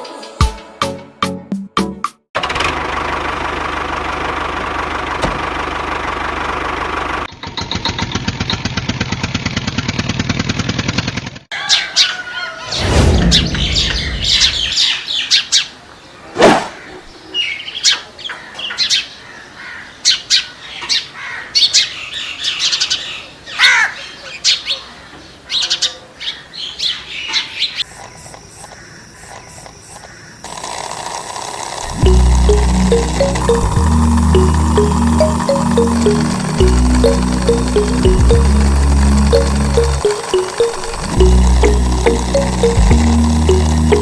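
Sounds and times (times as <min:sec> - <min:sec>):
low rumble: 0:12.7 - 0:14.8.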